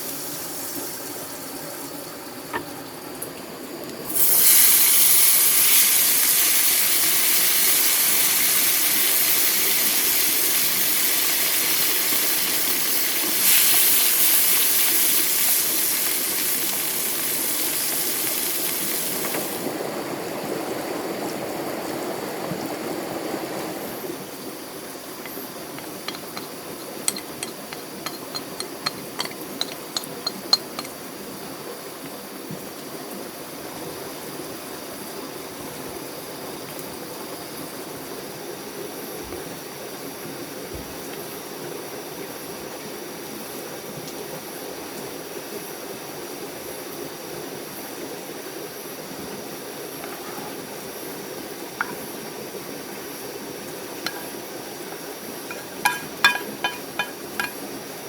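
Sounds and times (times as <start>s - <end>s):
water hissing spray: 4.1s - 19.8s
small sharp clinks: 26.1s - 31.0s.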